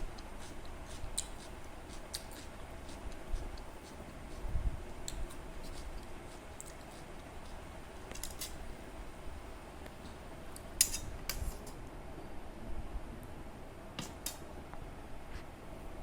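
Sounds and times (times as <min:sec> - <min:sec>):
person eating crisp crunches: 0:00.0 - 0:07.6.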